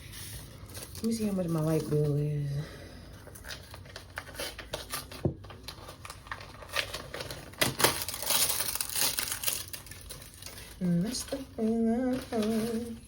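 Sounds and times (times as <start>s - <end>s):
paper rustling: 3.2s - 13.0s.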